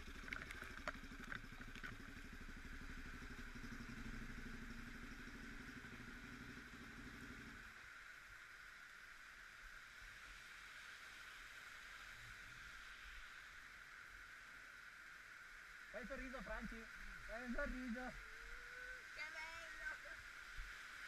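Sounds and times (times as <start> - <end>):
motorcycle engine idling: 0.0 - 8.4
steady hiss: 2.1 - 21.0.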